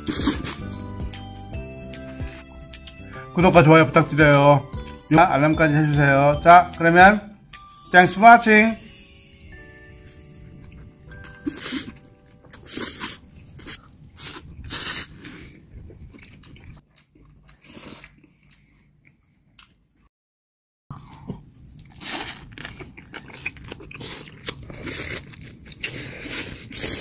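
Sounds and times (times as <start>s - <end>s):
crunchy chewing: 10.6s - 20.0s, 20.9s - 27.0s.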